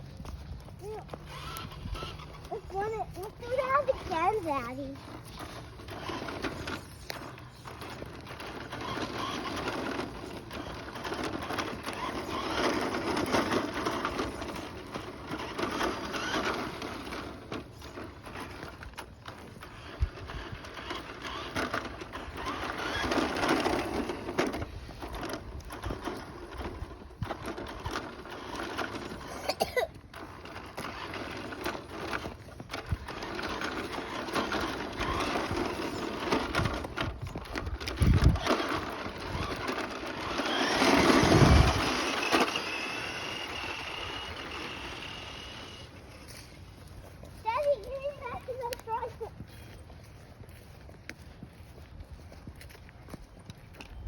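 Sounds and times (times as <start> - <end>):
small electric motor whirring: 0.0 - 46.8
plastic wheels rolling on pavement: 0.0 - 54.0.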